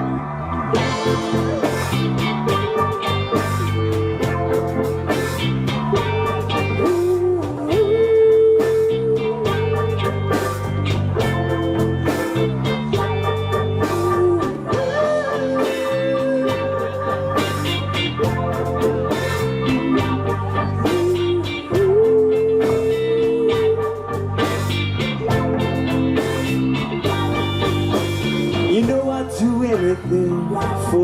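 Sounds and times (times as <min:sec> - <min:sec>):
bass and drums groove: 0:00.0 - 0:31.0
electric guitar lead bends: 0:00.0 - 0:31.0.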